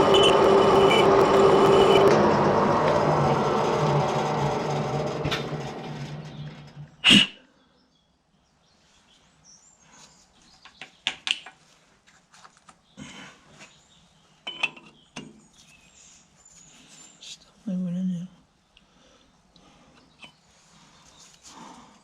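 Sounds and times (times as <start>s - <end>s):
lathe humming and cutting: 0.0s - 6.4s.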